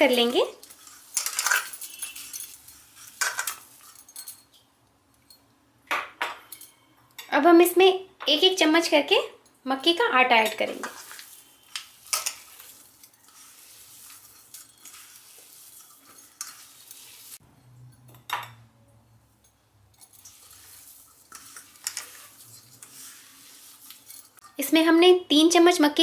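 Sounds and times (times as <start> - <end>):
spoon scraping a mixing bowl: 0.2 - 4.1, 10.6 - 18.1, 20.0 - 24.6.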